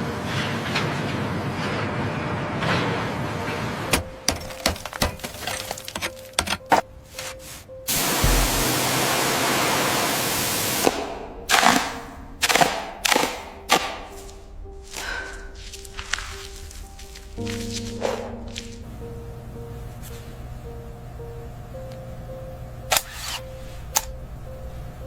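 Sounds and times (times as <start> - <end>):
metal clanking and cracking: 3.9 - 6.8
hissing blast: 7.9 - 11.1
heavy ringing impacts: 8.2 - 9.0.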